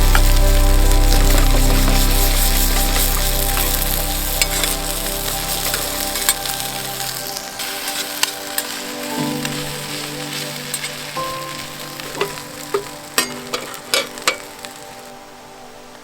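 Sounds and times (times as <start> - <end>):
food sizzling in a hot pan: 0.0 - 16.0
soft background music: 0.0 - 16.0.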